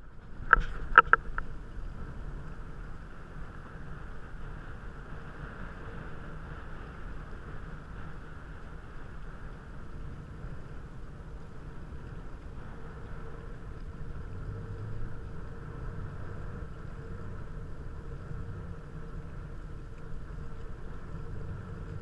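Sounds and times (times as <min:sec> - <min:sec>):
rush of wind and water: 0:00.0 - 0:22.0
low rumble: 0:08.9 - 0:22.0.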